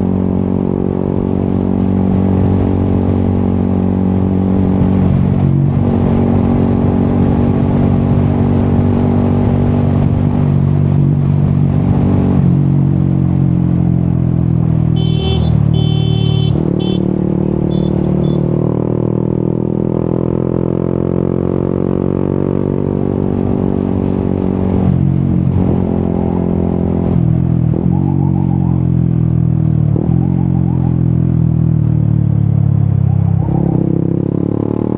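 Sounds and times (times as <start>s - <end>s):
motorcycle engine under way: 0.0s - 34.9s
short high-pitched beeps: 17.6s - 18.5s.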